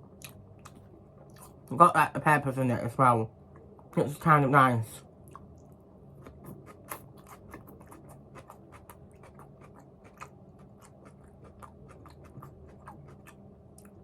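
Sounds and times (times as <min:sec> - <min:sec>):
person crunching salad: 0:05.3 - 0:14.0.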